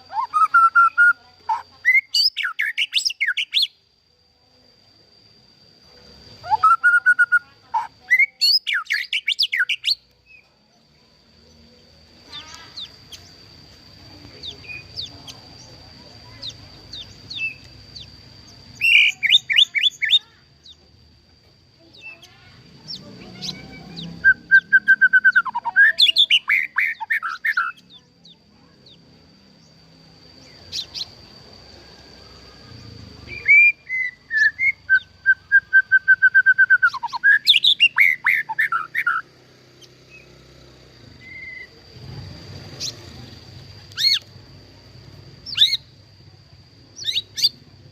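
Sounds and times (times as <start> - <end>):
faint steady high tone: 0.0 - 41.8
bird singing whistled phrases: 0.1 - 3.8, 6.4 - 10.4, 18.8 - 20.2, 22.9 - 28.1, 33.3 - 39.3, 41.2 - 41.8.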